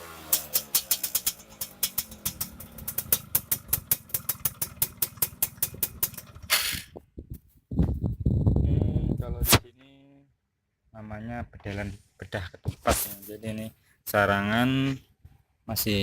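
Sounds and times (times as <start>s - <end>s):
motorcycle exhaust popping idle: 0.0s - 7.0s.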